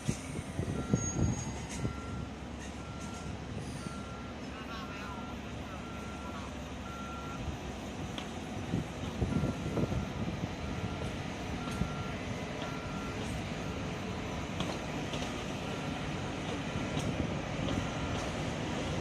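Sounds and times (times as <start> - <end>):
train clanks: 0.0 - 4.9, 7.6 - 19.0
train rumbling: 0.0 - 19.0
electronic warning beeps: 0.8 - 7.4, 9.2 - 13.9, 17.7 - 18.4.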